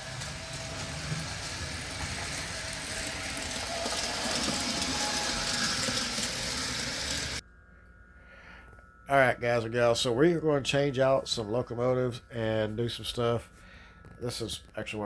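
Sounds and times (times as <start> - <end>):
model train wheels clattering: 0.0 - 7.4.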